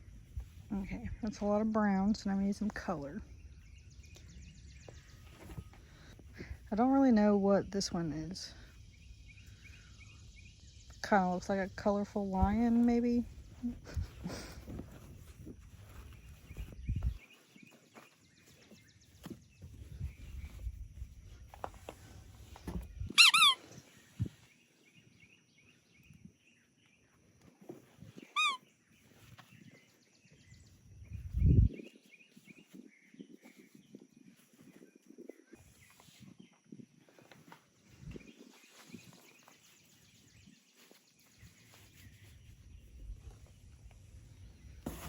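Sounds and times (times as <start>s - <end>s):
rustle of plush toys: 3.5s - 6.7s, 12.4s - 25.3s, 27.1s - 45.0s
squeaky dog toy: 23.1s - 23.6s, 28.3s - 28.6s.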